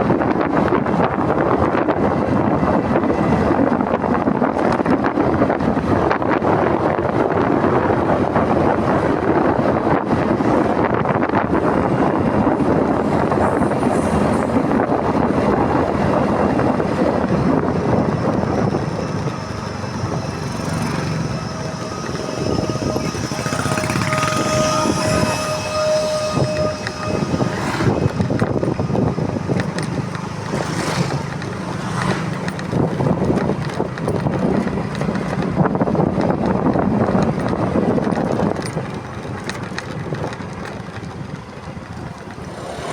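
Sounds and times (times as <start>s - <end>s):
road noise: 0.0s - 42.9s
wind rushing over microphone: 0.0s - 42.9s
motorcycle engine: 0.1s - 42.9s
steady high tone: 11.9s - 30.0s.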